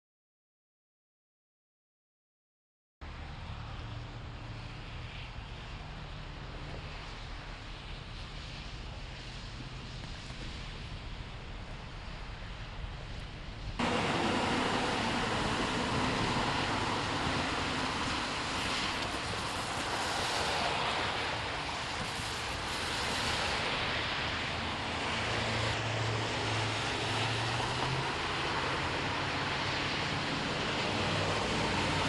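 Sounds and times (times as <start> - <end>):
engine low hum: 3.0 - 22.0
road traffic hiss: 3.0 - 32.0.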